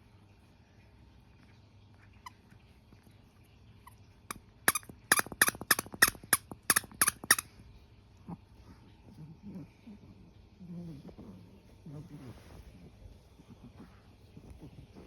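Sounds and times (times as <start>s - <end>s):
squeaky toy squeaking: 3.8s - 7.5s.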